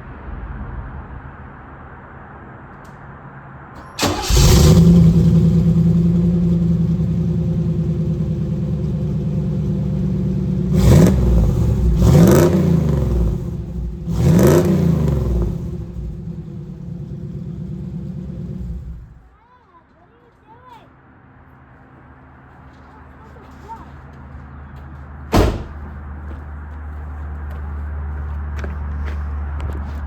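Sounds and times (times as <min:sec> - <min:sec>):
car engine starting and idling: 0:03.8 - 0:19.2
engine revving: 0:04.0 - 0:19.2.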